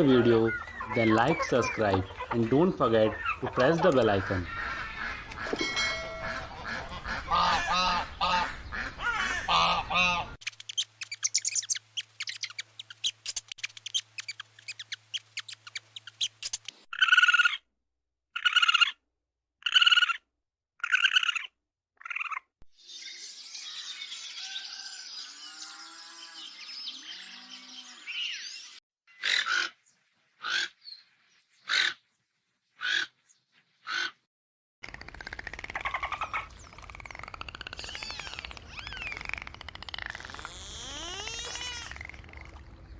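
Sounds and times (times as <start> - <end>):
bird calls: 0.0 - 17.6, 34.9 - 42.9.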